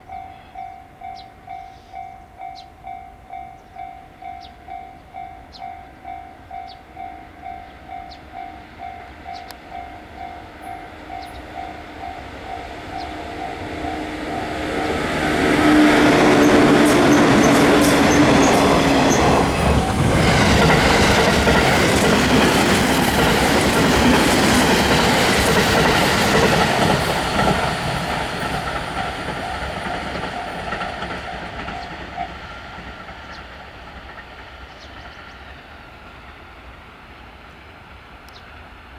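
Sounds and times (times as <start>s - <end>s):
electric train passing: 0.0s - 38.9s
wheels clattering over rail joints: 15.3s - 33.3s.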